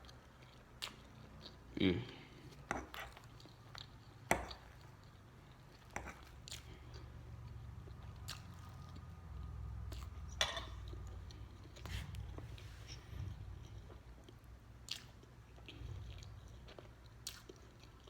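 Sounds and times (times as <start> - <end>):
low steady hum: 0.0 - 18.0
person chewing: 0.0 - 18.0.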